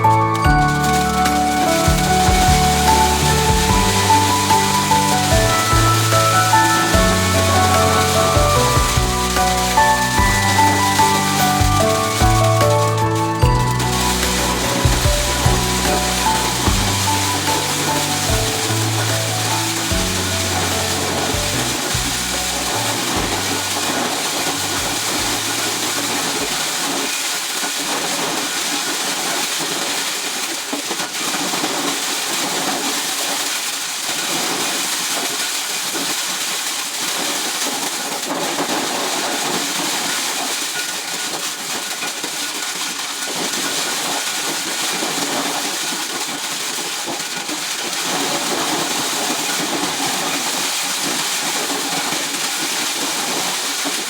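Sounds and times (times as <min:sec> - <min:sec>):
corn shelling machine hissing: 0:00.0 - 0:27.3.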